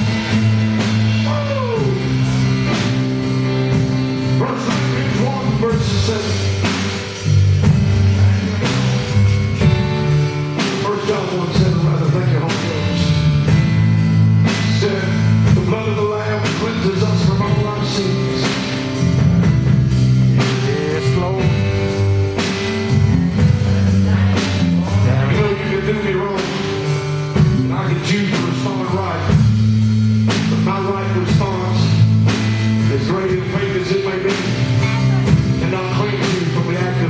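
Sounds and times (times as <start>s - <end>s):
gospel band playing: 0.0s - 37.0s
person singing: 1.2s - 2.9s, 4.3s - 6.9s, 7.9s - 13.3s, 14.6s - 18.8s, 20.4s - 21.9s, 23.5s - 29.4s, 32.8s - 37.0s.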